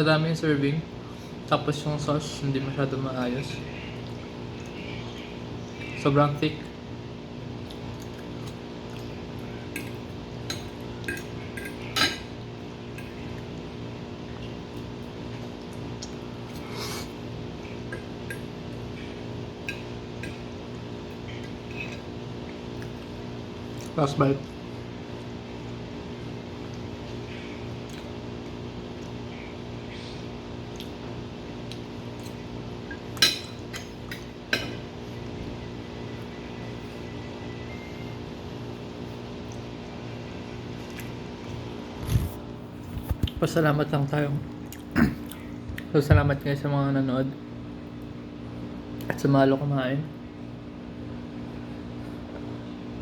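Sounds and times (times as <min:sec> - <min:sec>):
low background hum: 0:00.0 - 0:53.0
cutlery clinking against a dish: 0:09.8 - 0:12.4, 0:33.1 - 0:34.9.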